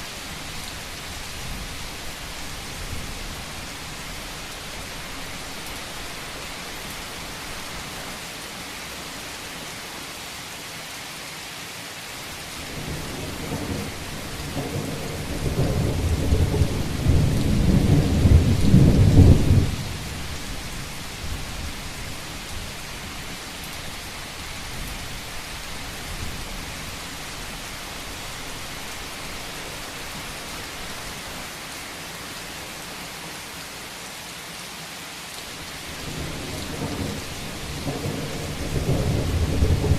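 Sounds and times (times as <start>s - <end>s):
heavy rain on a roof: 0.0s - 39.9s
thunder rumbling: 12.7s - 20.2s, 36.0s - 39.9s.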